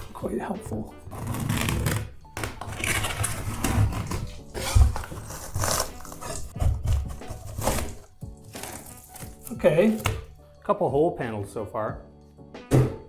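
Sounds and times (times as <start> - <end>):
scraper scraping ceiling tiles: 1.0 - 10.0
tiles tearing away: 1.1 - 10.3
dull thump: 12.7 - 13.0.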